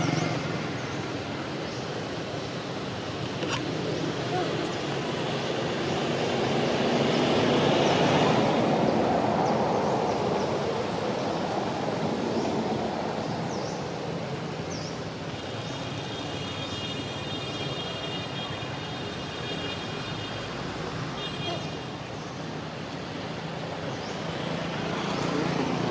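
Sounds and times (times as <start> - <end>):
passing vehicle: 0.0 - 14.9, 20.1 - 25.9.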